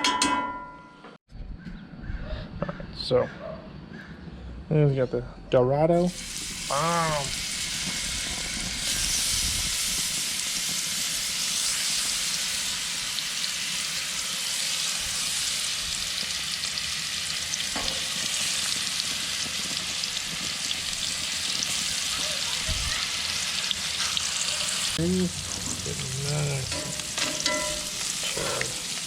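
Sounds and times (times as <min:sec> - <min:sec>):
fish sizzling in a skillet: 0:06.1 - 0:29.0.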